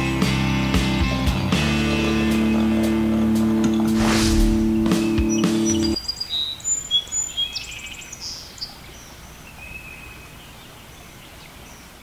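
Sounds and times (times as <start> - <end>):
birds chirping and whistling: 3.9 - 10.4
outdoor hiss: 4.0 - 6.8.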